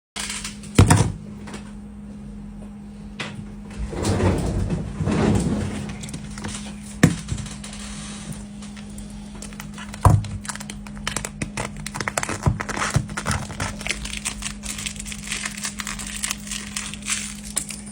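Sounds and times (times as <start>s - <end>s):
low steady hum: 0.2s - 17.9s
rustling scrape: 3.7s - 8.6s.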